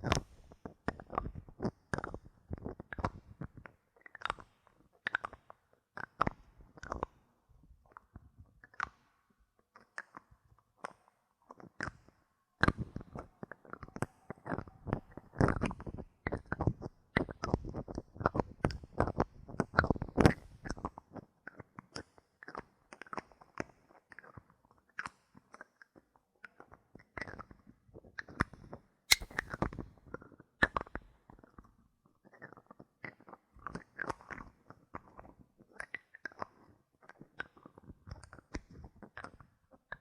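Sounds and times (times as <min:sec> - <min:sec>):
bottle caps clicking: 0:29.1 - 0:29.4.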